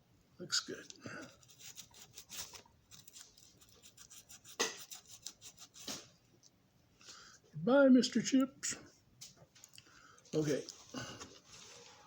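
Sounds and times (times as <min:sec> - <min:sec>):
scratchy rubbing on metal: 0:01.3 - 0:06.0.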